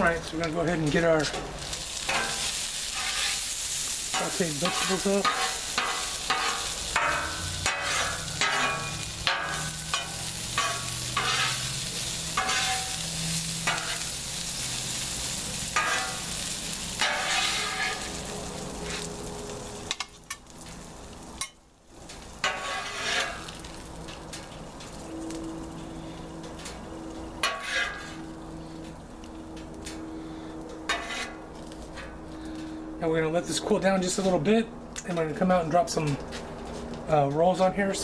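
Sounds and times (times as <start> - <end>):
food sizzling: 0.0 - 32.0
metal spatula scraping griddle: 1.2 - 20.4, 22.4 - 24.2, 25.8 - 28.8, 29.9 - 32.2.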